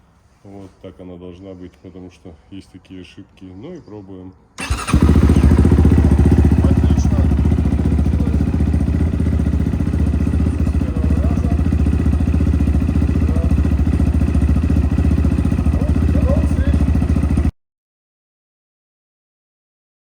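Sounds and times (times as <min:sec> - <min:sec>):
dirt bike engine idling: 0:04.6 - 0:17.5.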